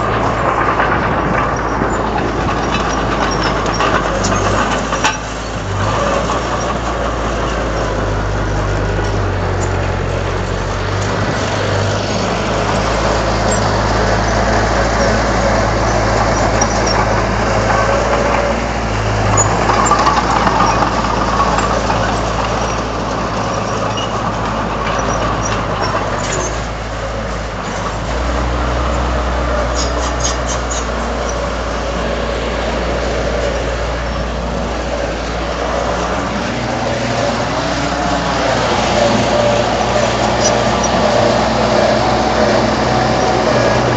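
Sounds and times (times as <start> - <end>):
diesel engine of heavy machinery: 0.0 - 43.9.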